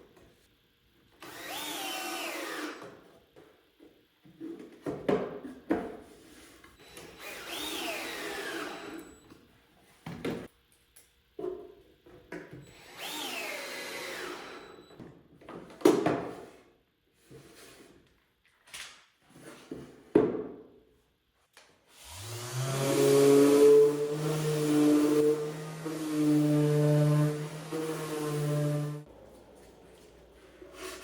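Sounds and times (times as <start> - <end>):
power drill driving screws: 1.2 - 2.8, 6.8 - 9.1, 12.7 - 14.8, 22.0 - 29.0.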